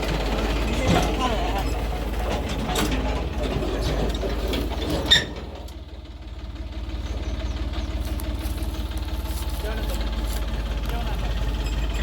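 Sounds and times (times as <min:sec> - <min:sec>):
heavy diesel engine running: 0:00.0 - 0:12.0.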